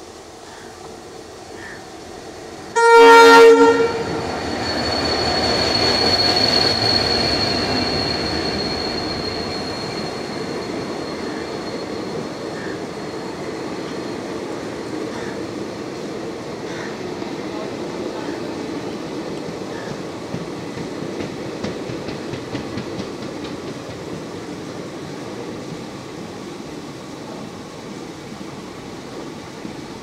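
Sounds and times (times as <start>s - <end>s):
train rolling on rails: 0.0s - 30.0s
locomotive horn blast: 2.7s - 4.2s
thin steady high tone: 4.1s - 15.1s.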